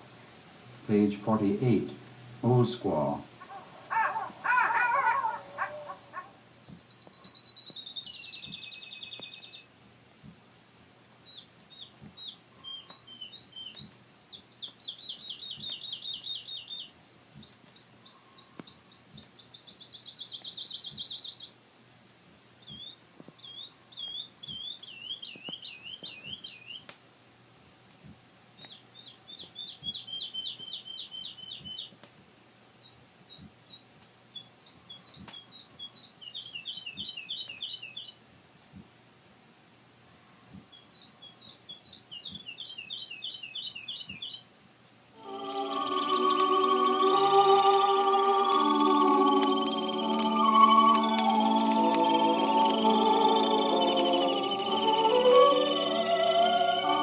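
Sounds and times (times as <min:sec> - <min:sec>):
songbird trilling and warbling: 0:03.4 - 0:09.7.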